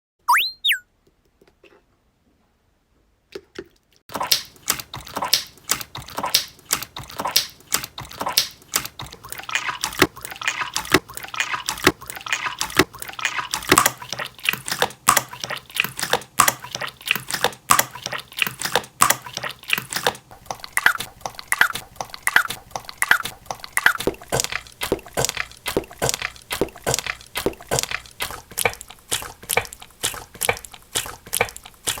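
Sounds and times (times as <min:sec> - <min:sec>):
squeaky chirps: 0:00.2 - 0:00.8.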